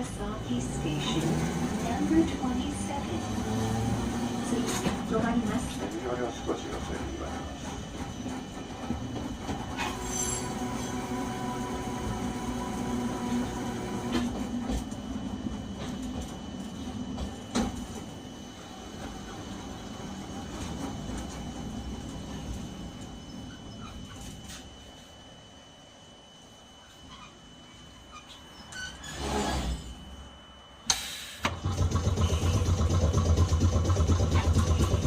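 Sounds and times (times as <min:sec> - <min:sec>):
rail noise: 0:00.0 - 0:24.9
tram running hum: 0:00.0 - 0:28.9, 0:29.9 - 0:35.0.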